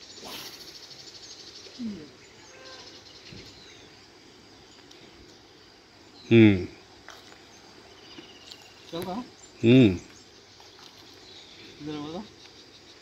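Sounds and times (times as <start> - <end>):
birds calling: 0.0 - 13.0.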